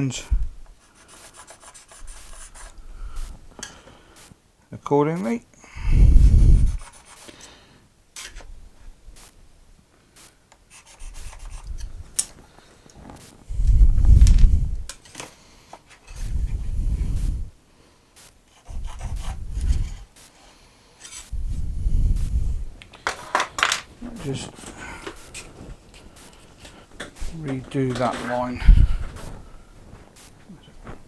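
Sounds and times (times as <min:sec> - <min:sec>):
wood rubbing against wood: 0:00.9 - 0:03.4, 0:10.2 - 0:12.4, 0:18.5 - 0:20.2.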